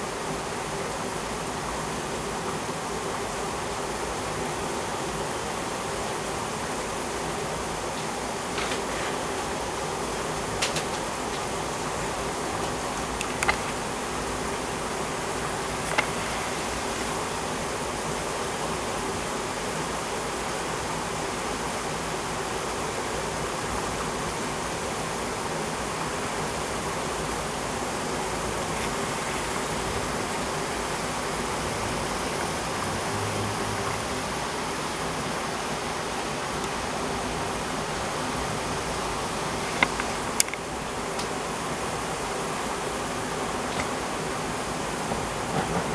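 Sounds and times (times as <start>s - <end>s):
heavy rain pouring: 0.2s - 45.9s.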